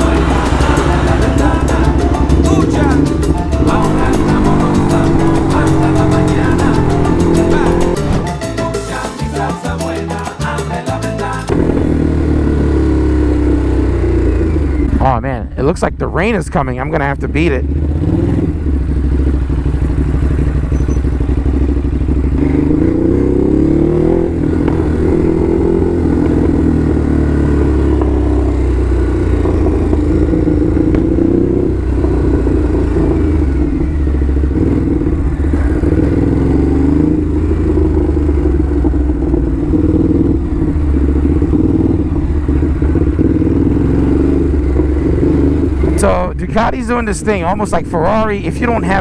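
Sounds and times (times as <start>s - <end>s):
motorcycle engine revving: 11.5s - 15.1s, 17.5s - 46.1s.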